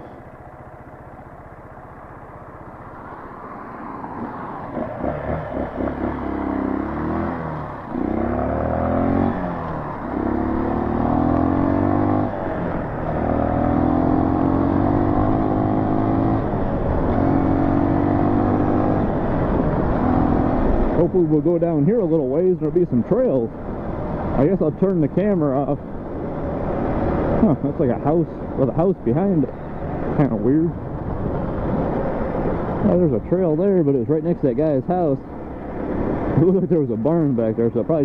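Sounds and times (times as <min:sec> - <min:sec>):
dirt bike engine accelerating: 0:04.0 - 0:23.5.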